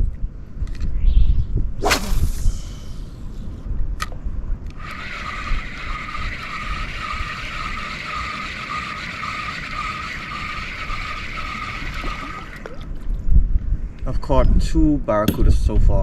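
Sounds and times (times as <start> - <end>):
low wind noise: 0.0 - 16.0
fishing reel whirring: 4.7 - 12.8.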